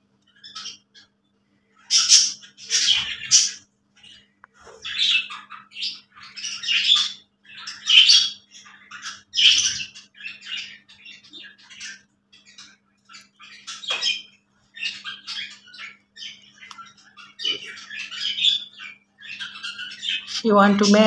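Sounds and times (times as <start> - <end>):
budgerigar chattering: 1.9 - 3.6.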